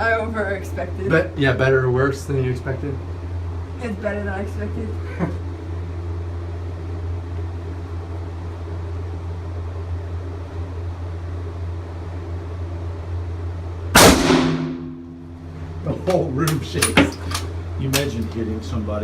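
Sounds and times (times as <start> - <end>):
steady low hum: 0.0 - 19.0
rifle shot echoing in small room: 14.0 - 15.3.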